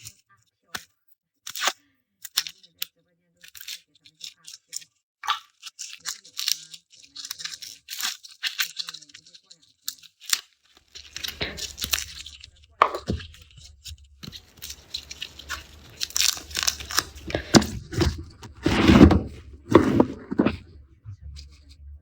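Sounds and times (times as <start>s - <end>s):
garlic skins crackling and tearing: 3.4s - 19.7s.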